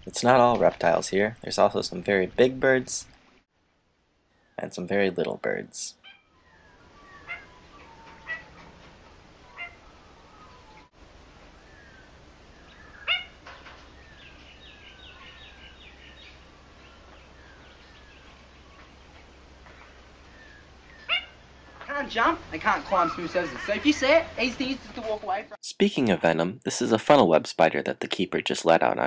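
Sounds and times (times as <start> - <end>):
sharp yapping bird calls: 6.0 - 10.9, 11.7 - 18.9, 20.3 - 24.9.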